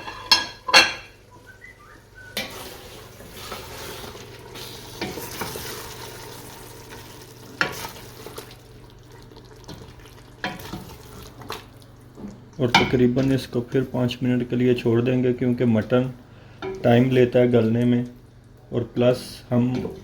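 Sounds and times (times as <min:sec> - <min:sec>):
meat sizzling in a pot: 0:02.4 - 0:12.2.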